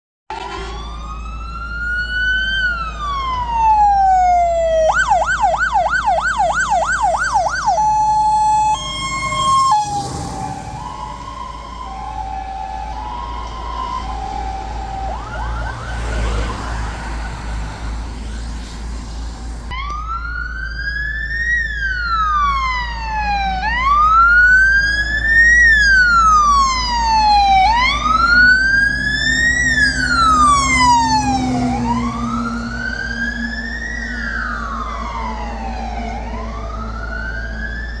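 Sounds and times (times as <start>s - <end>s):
fire engine siren wailing: 0.3s - 38.0s
truck engine running: 5.7s - 19.8s, 26.1s - 38.0s.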